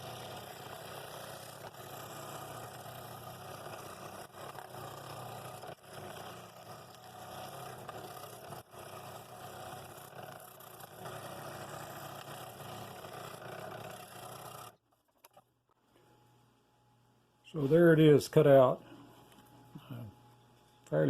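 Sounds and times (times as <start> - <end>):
scroll saw cutting wood: 0.0 - 14.8.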